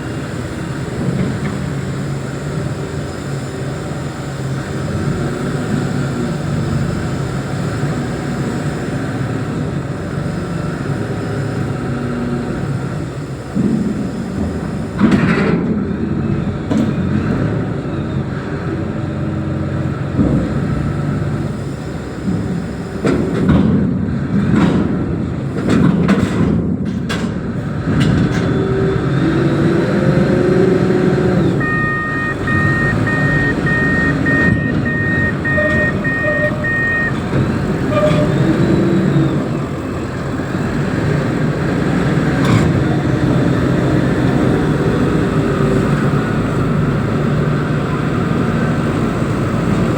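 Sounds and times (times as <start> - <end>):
diesel engine running: 0.0 - 49.9
reversing alarm beeping: 31.4 - 38.6.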